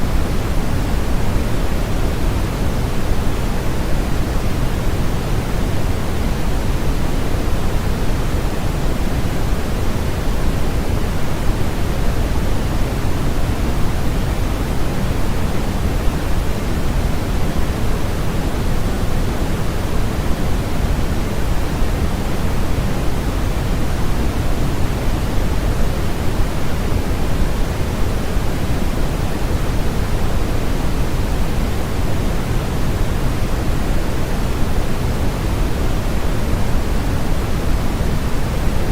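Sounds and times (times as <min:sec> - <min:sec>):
steady deep hiss noise: 0:00.0 - 0:38.9.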